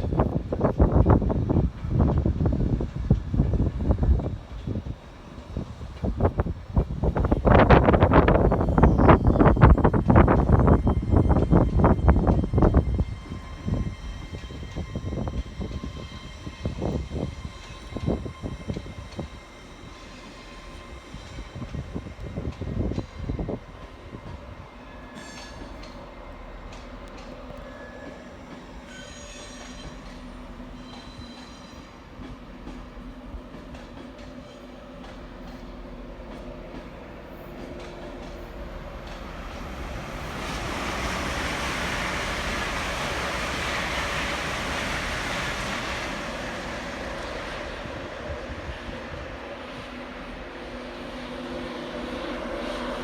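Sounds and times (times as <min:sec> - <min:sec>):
train passing on rails: 0:00.0 - 0:53.0
high wheel squeals: 0:30.7 - 0:31.9.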